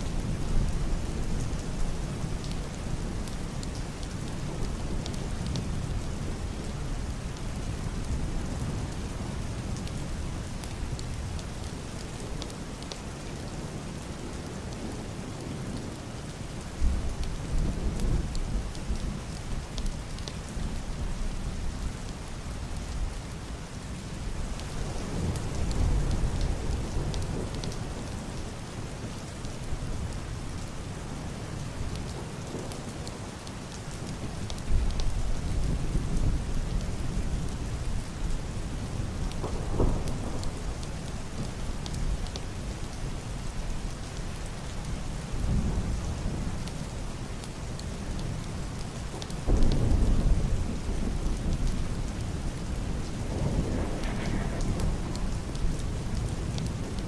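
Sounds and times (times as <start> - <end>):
heavy rain on roof and window: 0.0 - 57.0
raindrops ticking: 38.9 - 45.0, 45.8 - 57.0
muffled thunder rolling: 39.0 - 41.5, 49.4 - 57.0.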